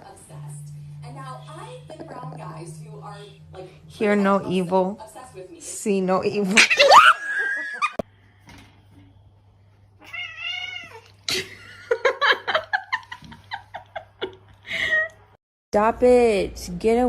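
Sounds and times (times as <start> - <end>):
cat meowing and yowling: 10.0 - 11.1.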